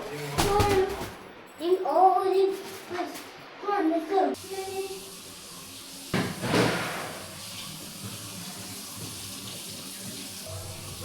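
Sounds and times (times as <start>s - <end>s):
water gushing from a tap: 4.4s - 11.0s.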